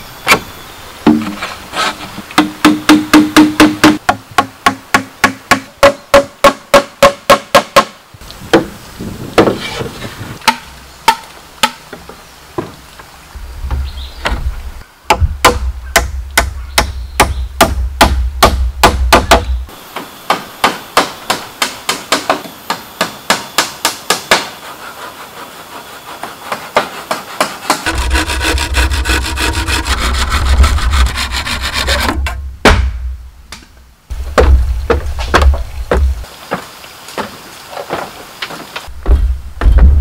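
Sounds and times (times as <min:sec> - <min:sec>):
hand saw cutting bamboo: 0:01.3 - 0:04.0, 0:24.1 - 0:32.3.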